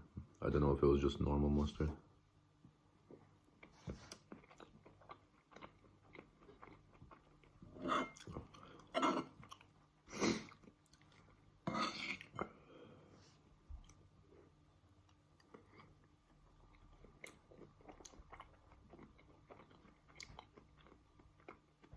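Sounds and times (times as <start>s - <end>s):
crunchy chewing: 3.6s - 9.8s, 16.6s - 21.9s.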